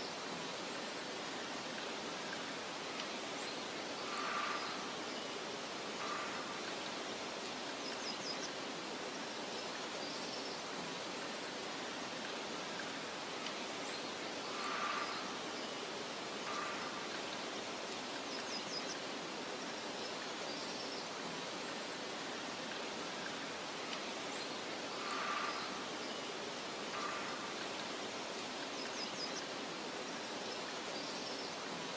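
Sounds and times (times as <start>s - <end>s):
soft wind hiss: 0.0s - 31.9s
faint bird chirps: 24.3s - 31.6s.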